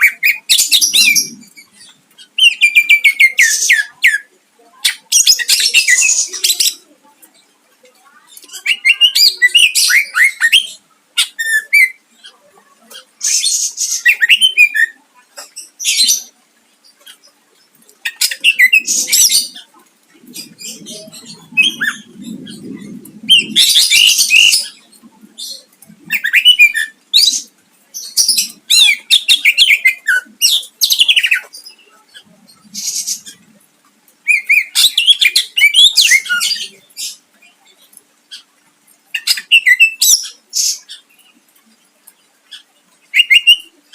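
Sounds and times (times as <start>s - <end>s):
bird singing: 0.0s - 4.3s, 18.0s - 33.5s, 39.1s - 43.9s.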